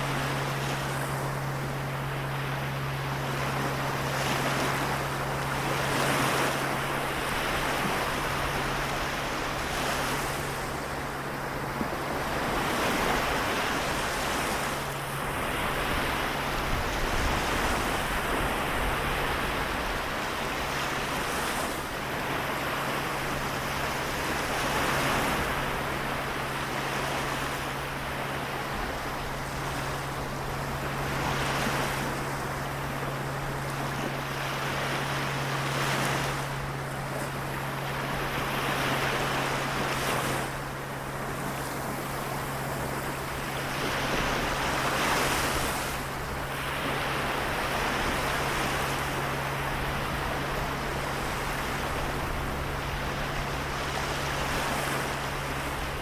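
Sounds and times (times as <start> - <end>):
small waves washing in: 0.0 - 56.0
steady low hum: 0.0 - 56.0.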